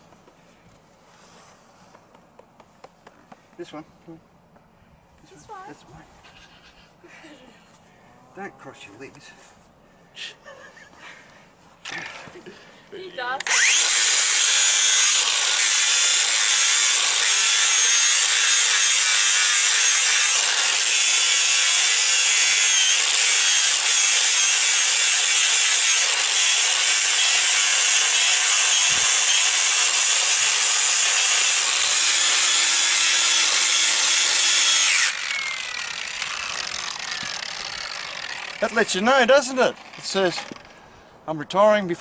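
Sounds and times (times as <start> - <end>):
power grinder grinding hoof: 11.9 - 12.4, 13.4 - 40.7.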